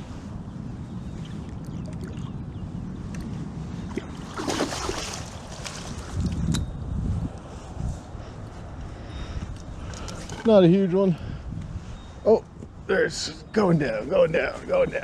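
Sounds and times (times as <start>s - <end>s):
wind rumble on microphone: 0.0s - 15.0s
water splashing: 3.9s - 6.2s.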